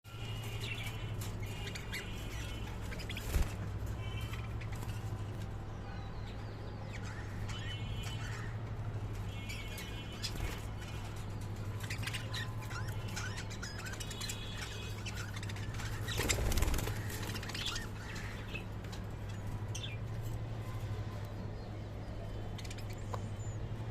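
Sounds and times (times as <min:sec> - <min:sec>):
parrots chirping and squawking: 0:00.2 - 0:05.4, 0:06.9 - 0:20.1.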